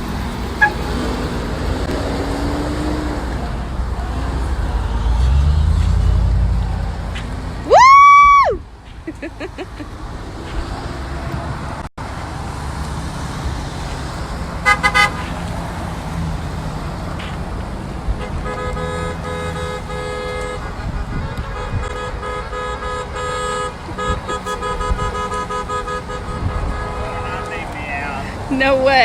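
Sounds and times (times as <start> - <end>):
rumble of running vehicles: 0.0 - 29.0
car horns honking: 0.5 - 1.1, 14.6 - 15.5, 18.0 - 29.0.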